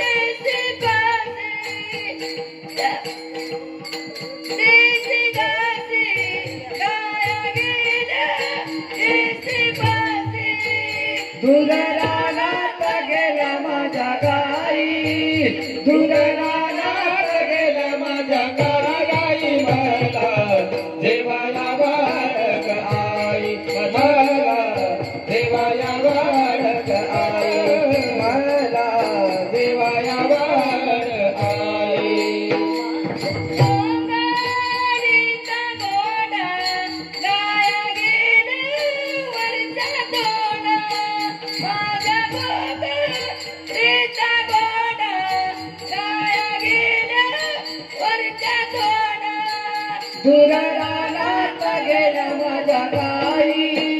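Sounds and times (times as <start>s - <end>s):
devotional song singing: 0.0s - 53.9s
jingling percussion: 0.0s - 53.9s.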